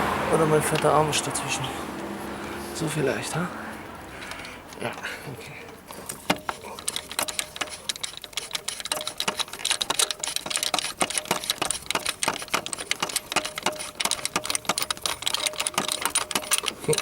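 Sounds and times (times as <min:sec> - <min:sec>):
ratchet wrench clicking: 0:04.2 - 0:04.8, 0:05.7 - 0:17.0.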